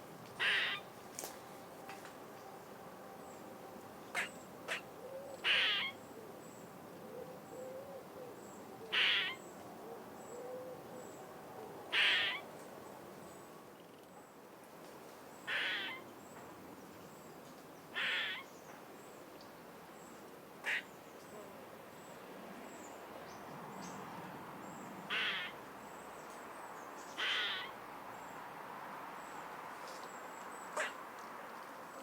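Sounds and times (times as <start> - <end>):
outdoor ambience hiss: 0.0 - 32.0
bird calling: 0.4 - 0.9, 4.1 - 6.0, 8.9 - 9.4, 11.9 - 12.4, 15.5 - 16.0, 18.0 - 18.5, 20.6 - 20.9, 25.1 - 25.6, 27.2 - 27.8, 30.8 - 31.0.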